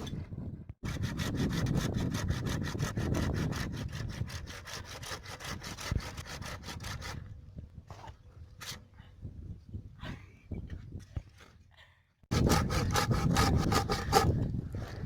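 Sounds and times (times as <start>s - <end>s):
saw cutting wood: 0.8s - 7.3s, 12.3s - 14.4s.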